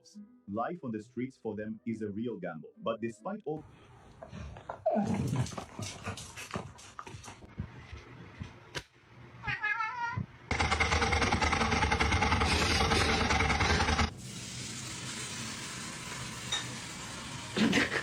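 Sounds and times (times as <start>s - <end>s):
cat meowing: 9.4s - 10.3s
loud fast rattling: 10.5s - 14.1s.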